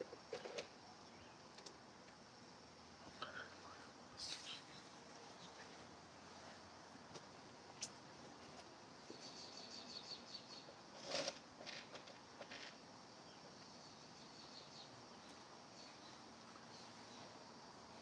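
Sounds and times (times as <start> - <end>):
birdsong chirps: 0.3 - 1.7, 9.0 - 10.8, 13.1 - 17.5.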